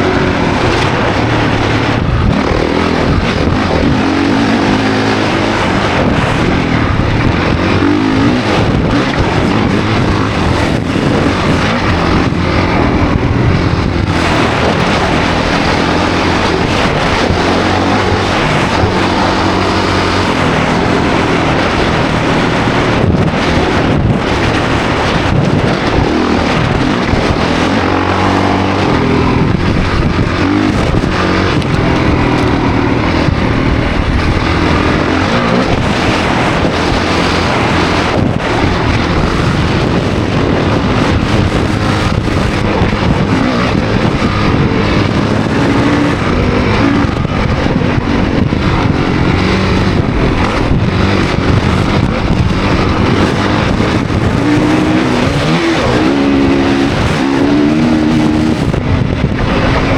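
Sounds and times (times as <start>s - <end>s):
dirt bike engine revving: 0.0s - 59.9s
wind rush: 0.0s - 59.9s.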